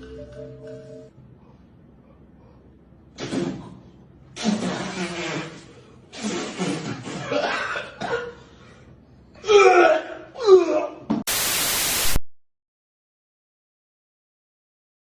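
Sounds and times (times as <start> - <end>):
person crying out: 9.4 - 11.1
loud static hiss: 11.3 - 12.2.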